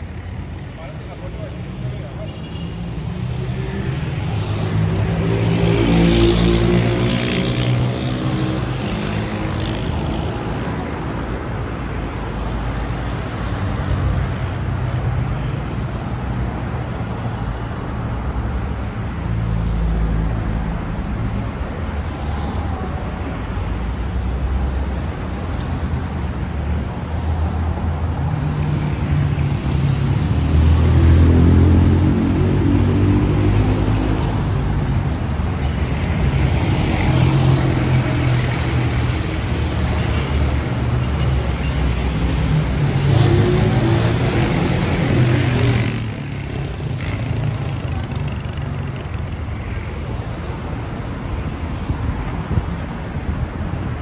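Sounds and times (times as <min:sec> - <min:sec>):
cars driving past: 0:15.4 - 0:54.0.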